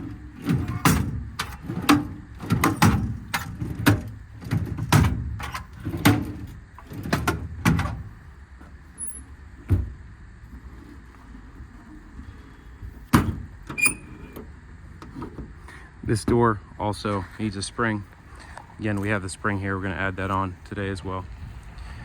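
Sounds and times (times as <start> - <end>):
metal door thump: 0.0 - 8.2, 9.0 - 10.0, 13.1 - 14.4
metal drawers clanking and rattling: 0.0 - 12.3, 12.9 - 15.6.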